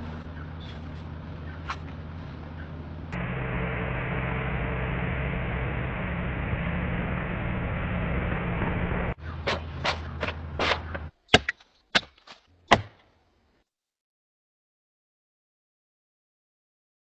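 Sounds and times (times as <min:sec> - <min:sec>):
electric motor hum: 0:00.0 - 0:11.1.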